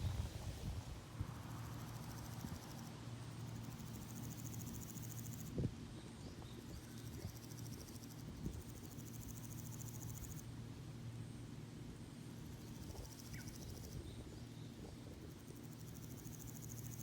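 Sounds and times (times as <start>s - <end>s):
insects chirping trill: 1.4s - 5.5s, 6.5s - 10.5s, 12.4s - 17.0s.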